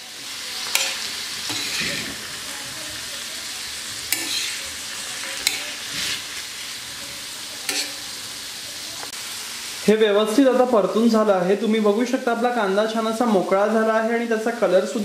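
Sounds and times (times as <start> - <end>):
food sizzling in oil: 0.0 - 15.0
spatula clicking on pan: 0.7 - 1.8, 4.1 - 4.6, 5.2 - 5.8, 7.7 - 8.0
metal spatula scraping pan: 0.7 - 2.4, 4.1 - 8.2.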